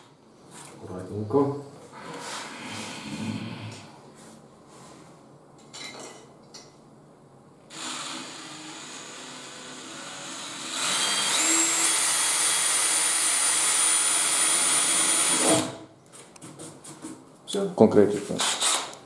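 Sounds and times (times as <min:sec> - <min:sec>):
power tool motor whining: 0:07.7 - 0:15.8.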